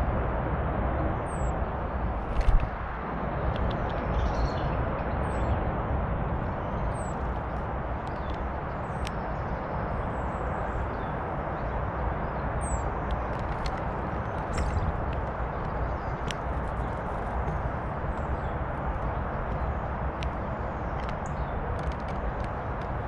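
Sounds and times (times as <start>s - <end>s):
rushing background noise: 0.0s - 23.0s.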